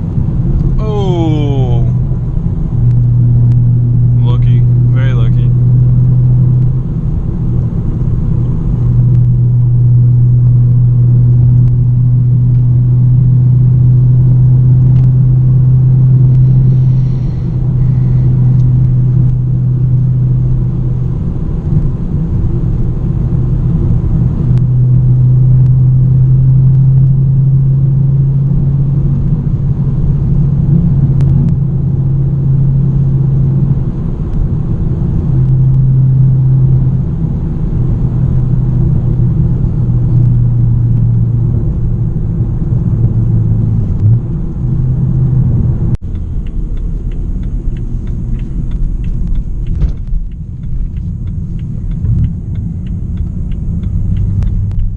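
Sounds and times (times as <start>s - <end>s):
car exhaust drone: 0.0s - 54.9s.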